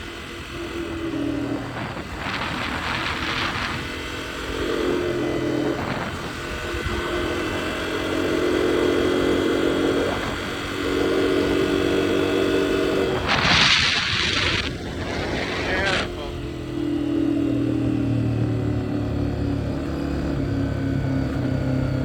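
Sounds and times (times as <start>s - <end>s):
dirt bike engine revving: 0.3s - 18.5s
rushing noise: 13.0s - 16.3s.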